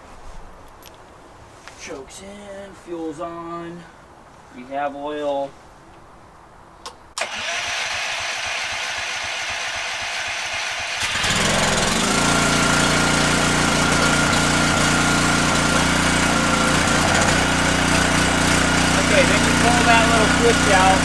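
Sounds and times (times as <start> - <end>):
engine cranking: 7.2 - 21.0
pressure washer engine running: 7.2 - 21.0.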